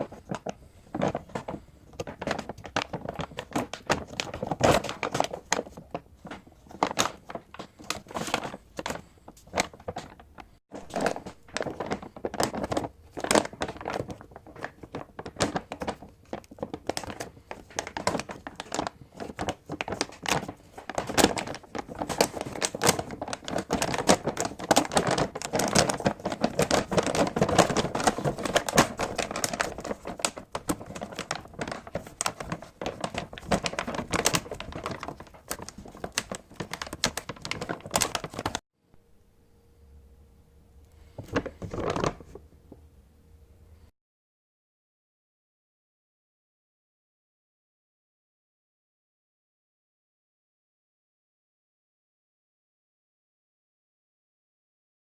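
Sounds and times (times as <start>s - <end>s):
packaging crinkling and rustling: 0.0s - 38.6s, 41.0s - 42.4s
packaging tearing: 0.0s - 38.6s.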